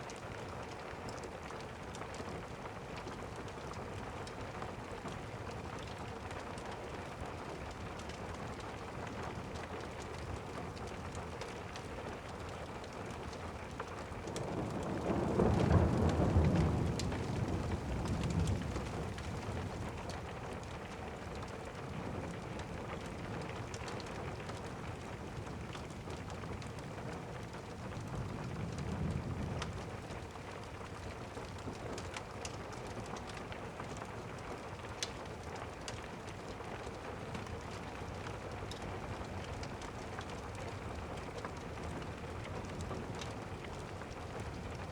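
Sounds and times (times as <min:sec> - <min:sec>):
steady rain: 0:00.0 - 0:44.9
thunder rumbling: 0:14.4 - 0:20.1.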